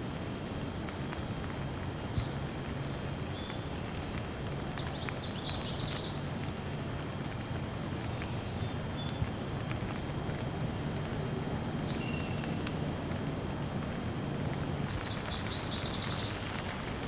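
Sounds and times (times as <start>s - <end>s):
steady rain: 0.0s - 17.0s
bird chirping and twittering: 2.0s - 6.3s, 14.9s - 16.6s.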